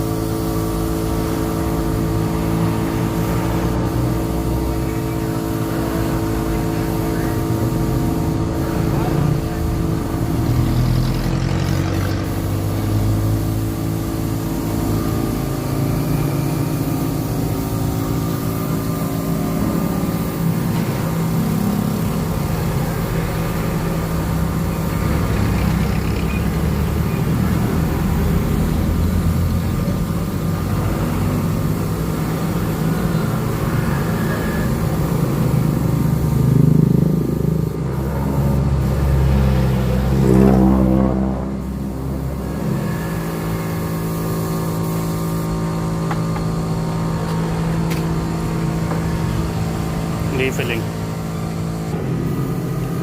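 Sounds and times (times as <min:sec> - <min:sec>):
people talking: 0:50.3 - 0:50.9.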